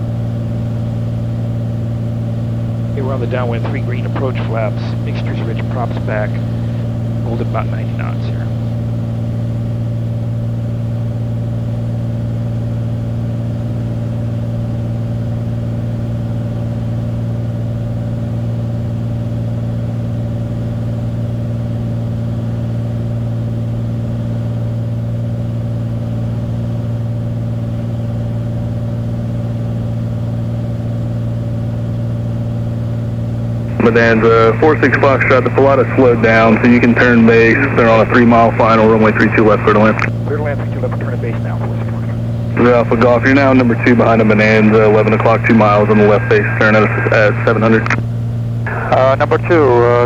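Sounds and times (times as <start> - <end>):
propeller plane engine drone: 0.0 - 50.0.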